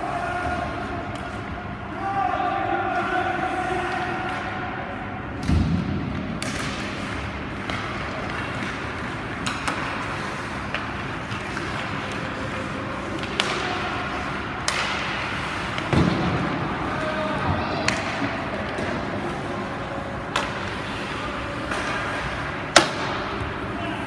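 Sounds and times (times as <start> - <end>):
ice rink noise: 0.0 - 24.0
stick and puck clacks: 5.4 - 16.6, 17.7 - 23.6.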